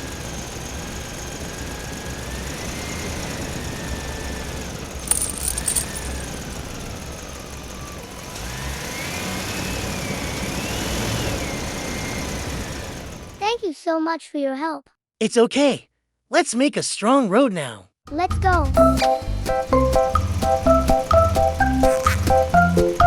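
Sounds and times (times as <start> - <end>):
clattering clicks: 5.0 - 6.2.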